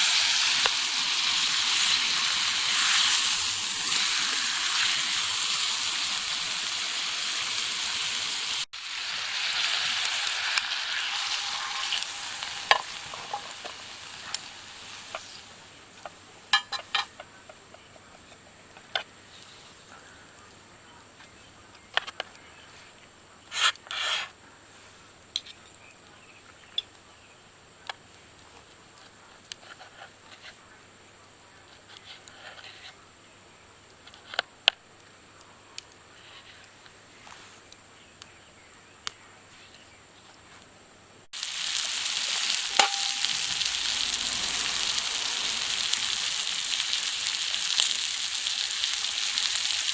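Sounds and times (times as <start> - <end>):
meat sizzling over a fire: 0.0 - 17.0, 41.3 - 49.9
fire crackling and popping: 9.5 - 17.9, 41.3 - 49.9.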